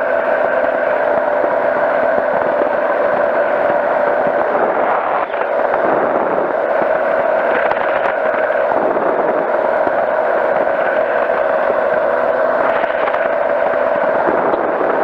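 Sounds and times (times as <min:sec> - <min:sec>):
engine and propeller drone: 0:00.0 - 0:15.0.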